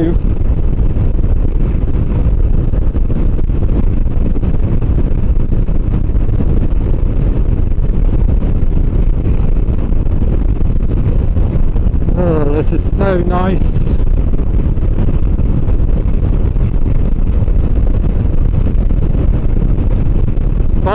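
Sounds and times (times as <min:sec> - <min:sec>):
wind buffeting microphone: 0:00.0 - 0:20.9
road noise: 0:12.1 - 0:14.0.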